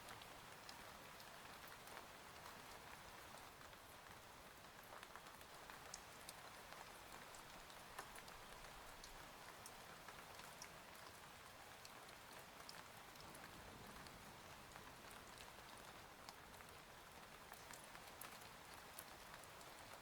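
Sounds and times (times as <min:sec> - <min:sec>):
faint steady rain: 0:00.0 - 0:20.0
raindrops ticking: 0:04.6 - 0:11.2.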